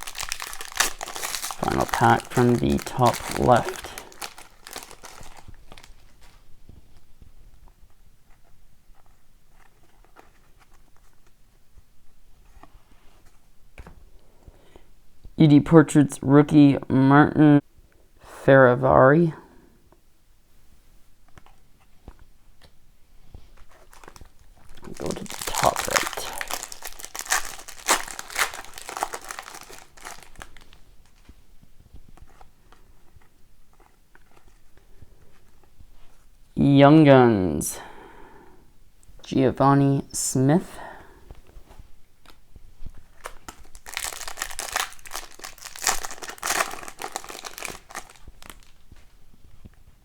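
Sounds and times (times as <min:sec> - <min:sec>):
card pack wrapper crinkling and tearing: 0:00.0 - 0:06.4, 0:23.6 - 0:31.3, 0:43.0 - 0:49.1
cards clicking and rustling: 0:00.0 - 0:06.4, 0:23.6 - 0:31.4, 0:43.0 - 0:49.0.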